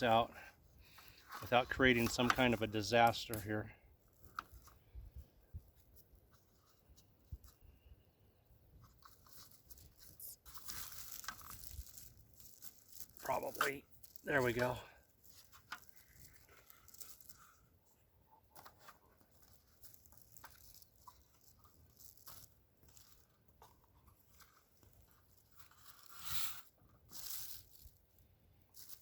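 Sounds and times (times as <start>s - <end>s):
rustling: 8.7s - 29.0s
dough tearing and crinkling: 8.8s - 29.0s.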